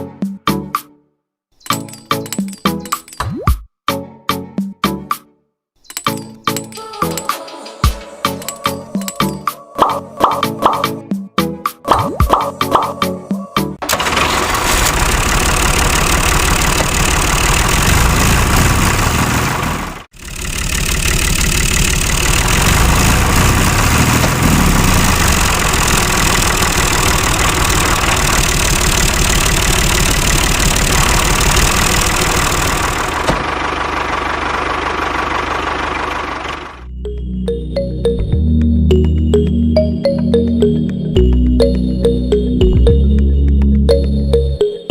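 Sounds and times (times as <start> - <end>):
small motor knocking: 13.8 - 33.8.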